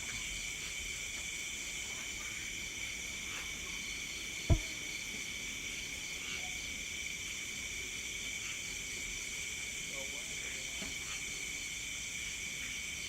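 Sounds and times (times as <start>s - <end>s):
crickets trilling: 0.0s - 13.0s
short low thump: 4.5s - 4.7s.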